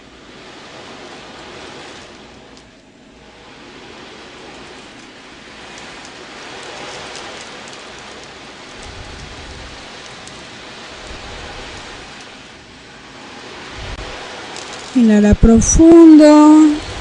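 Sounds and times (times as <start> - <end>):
ocean drum beads rolling: 3.7 - 15.0.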